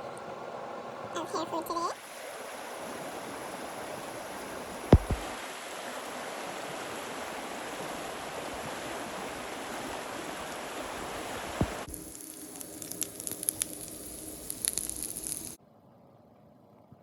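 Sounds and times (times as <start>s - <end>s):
steady rushing noise: 2.2s - 11.9s
sharp knock: 4.9s - 5.3s.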